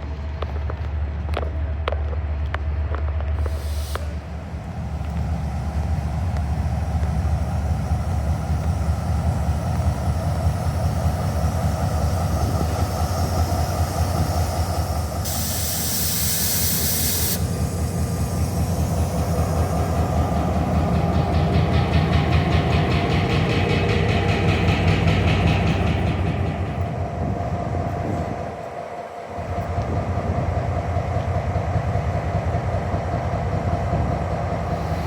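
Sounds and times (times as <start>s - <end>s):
train running with low rumble: 0.0s - 35.0s
loud hiss: 3.4s - 4.4s, 6.0s - 20.5s.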